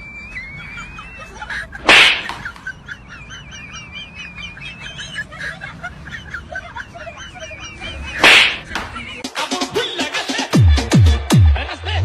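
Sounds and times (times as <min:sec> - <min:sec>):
birds chirping and twittering: 0:00.0 - 0:09.2
loud swish: 0:01.8 - 0:02.3, 0:08.2 - 0:08.6.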